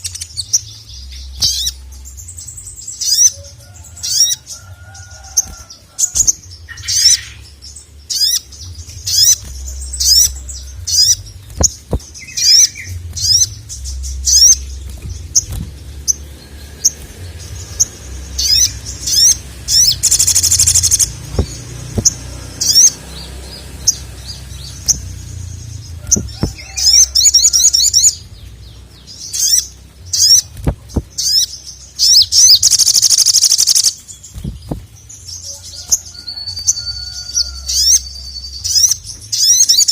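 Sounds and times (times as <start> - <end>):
bird chirping: 0.0 - 39.9
low steady rumble: 5.5 - 32.6.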